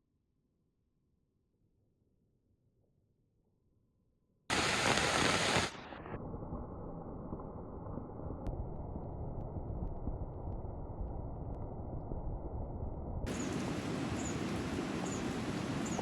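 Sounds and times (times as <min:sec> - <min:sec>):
rushing floodwater: 0:04.5 - 0:05.7, 0:13.3 - 0:16.0.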